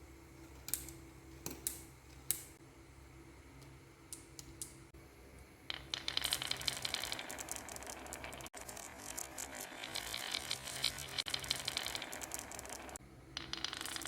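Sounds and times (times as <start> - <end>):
marbles clattering on wood: 5.7 - 14.0.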